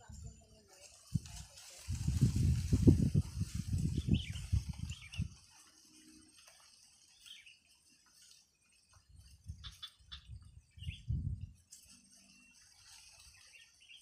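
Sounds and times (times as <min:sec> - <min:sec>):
faint bird chirps: 0:04.0 - 0:14.0.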